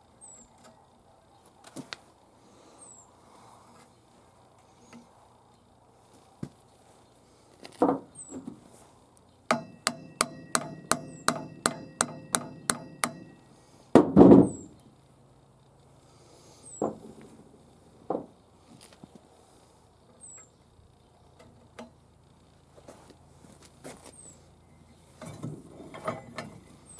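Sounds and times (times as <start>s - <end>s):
heavy knock: 9.5s - 13.4s
hammer striking metal: 9.5s - 13.5s.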